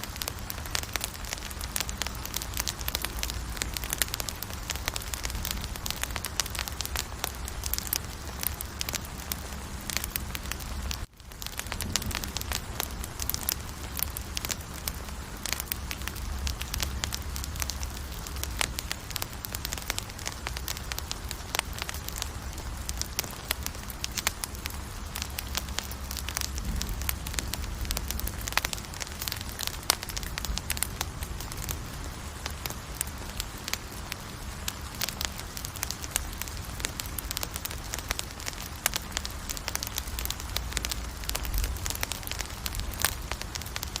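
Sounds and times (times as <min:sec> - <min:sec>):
campfire pops and snaps: 0:00.0 - 0:34.0, 0:34.7 - 0:44.0
hiss of burning wood: 0:00.0 - 0:44.0
low rumble: 0:21.7 - 0:32.7.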